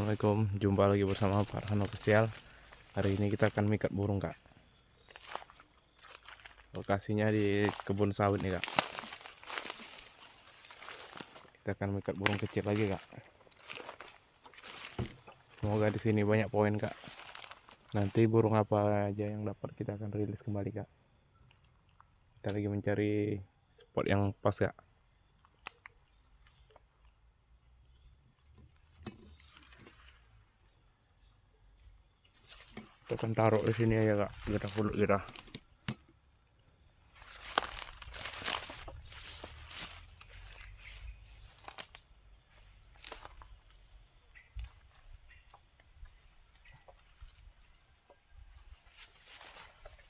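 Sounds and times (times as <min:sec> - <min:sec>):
insects shrilling: 0:00.0 - 0:19.4, 0:32.2 - 0:50.0.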